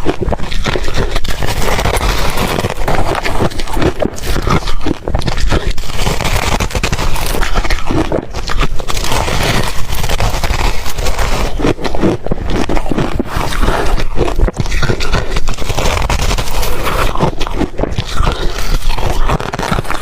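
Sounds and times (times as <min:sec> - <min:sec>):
ice being crunched and chewed: 0:00.0 - 0:20.0.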